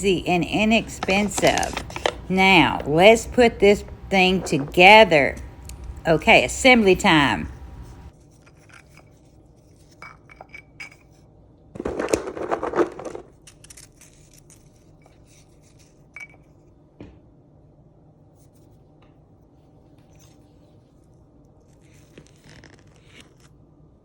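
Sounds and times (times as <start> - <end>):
scraping and rustling: 0.4 - 5.6.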